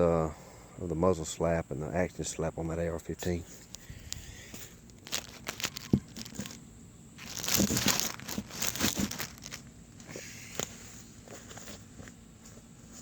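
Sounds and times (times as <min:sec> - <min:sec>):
crinkling and rustling: 0:03.6 - 0:06.6, 0:07.2 - 0:13.0.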